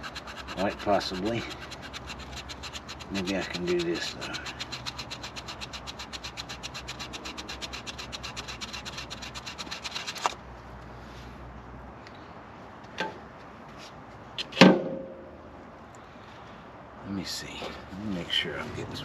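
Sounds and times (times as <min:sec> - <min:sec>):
file rasping on metal: 0:00.0 - 0:10.4.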